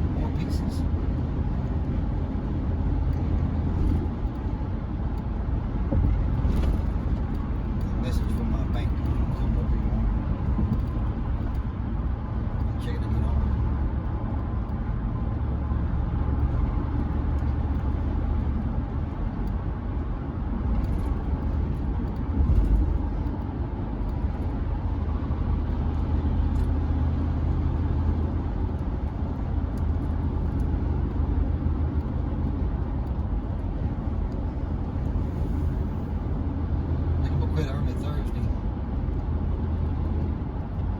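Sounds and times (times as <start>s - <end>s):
road and tyre noise: 0.0s - 40.9s.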